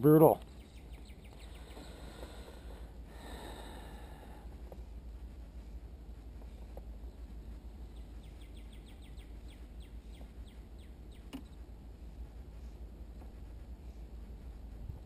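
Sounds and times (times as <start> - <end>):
songbird singing: 0.0 - 4.9, 6.4 - 12.2
low steady rumble: 0.0 - 15.0.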